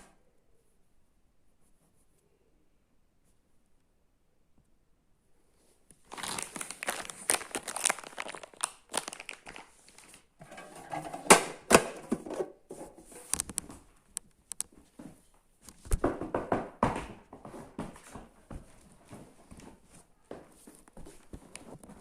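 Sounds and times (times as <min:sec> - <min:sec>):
packaging crinkling and tearing: 0:06.0 - 0:10.4, 0:13.2 - 0:13.7.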